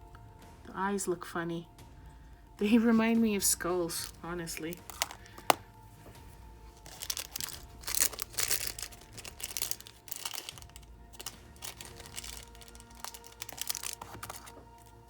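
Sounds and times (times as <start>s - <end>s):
plastic packets crinkling: 4.0s - 5.6s, 6.7s - 15.0s.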